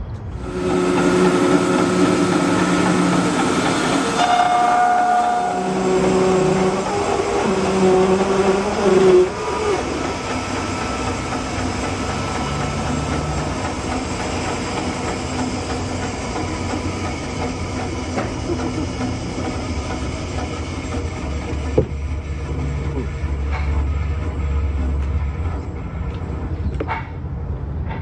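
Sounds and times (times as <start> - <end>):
sawmill cutting log: 0.4 - 21.6.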